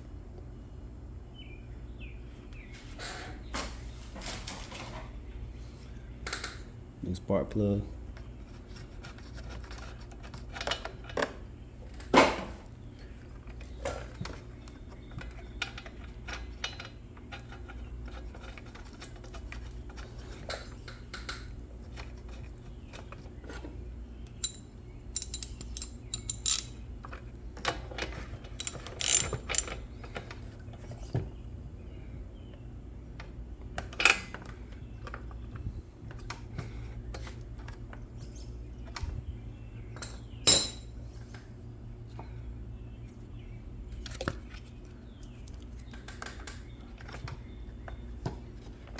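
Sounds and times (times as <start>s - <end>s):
hand tools knocking: 24.4s - 24.6s, 25.2s - 26.7s, 28.6s - 29.7s
ratchet wrench clicking: 25.2s - 26.8s, 28.6s - 29.8s.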